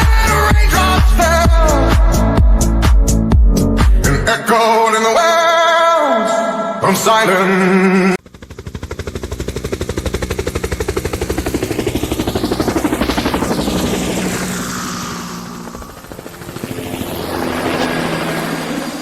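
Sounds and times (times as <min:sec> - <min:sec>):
helicopter rotor chopping: 0:08.2 - 0:19.0.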